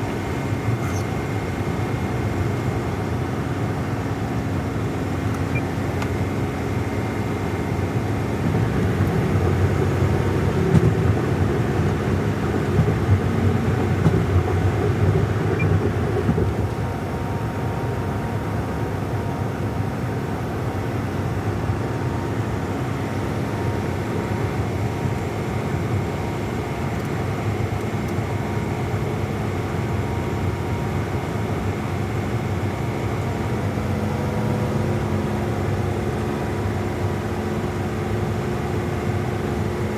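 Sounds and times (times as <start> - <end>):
truck engine drone: 0.0 - 39.9
road noise: 5.0 - 17.2.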